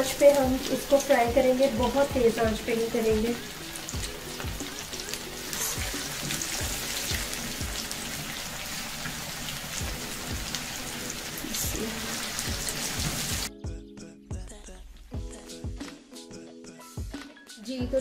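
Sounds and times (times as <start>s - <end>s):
background music with beat: 0.0s - 8.3s, 9.7s - 18.0s
patties sizzling in oil: 0.0s - 13.5s.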